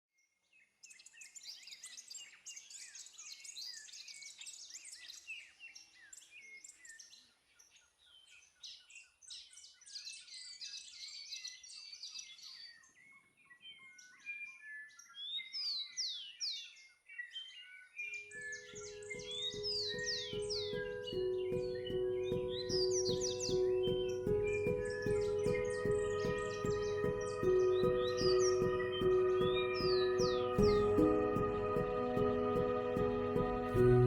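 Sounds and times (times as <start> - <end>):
birds chirping and whistling: 8.1 - 34.0
music: 18.3 - 34.0.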